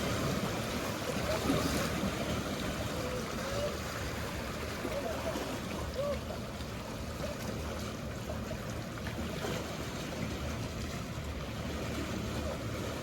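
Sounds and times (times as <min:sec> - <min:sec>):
low hum of boats: 0:00.0 - 0:13.0
sea water washing: 0:00.0 - 0:13.0.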